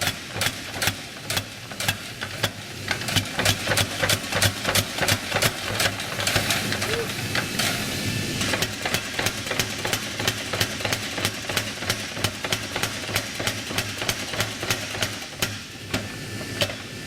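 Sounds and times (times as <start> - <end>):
steady mechanical hum: 0.3 - 10.2.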